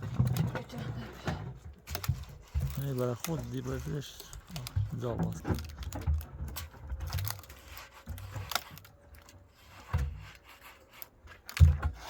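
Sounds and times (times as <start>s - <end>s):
wood rubbing and scraping: 0.0s - 12.0s
wood knocks: 11.5s - 12.0s.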